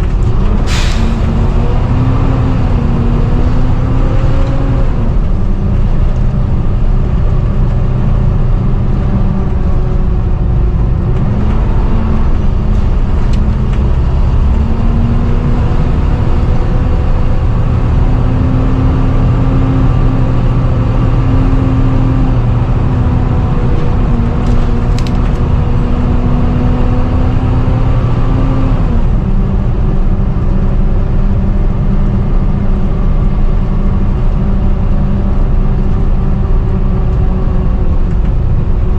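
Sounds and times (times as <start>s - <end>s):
bus engine whining drone: 0.0s - 38.9s.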